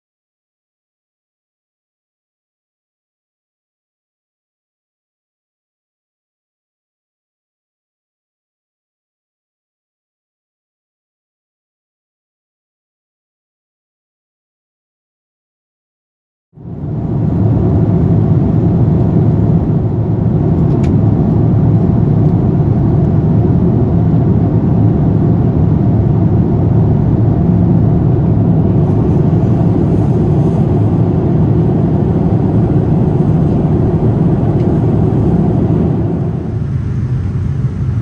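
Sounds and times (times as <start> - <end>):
moving vehicle rumble: 16.6 - 38.0.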